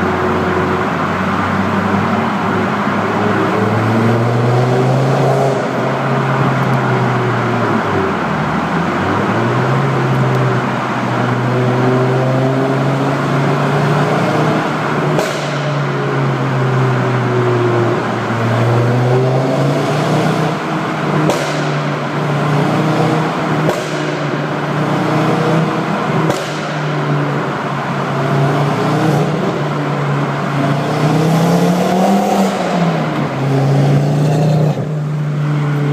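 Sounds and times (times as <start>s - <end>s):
exhaust pops and bangs: 15.1s - 15.8s, 21.2s - 22.0s, 23.6s - 24.2s, 26.2s - 26.9s.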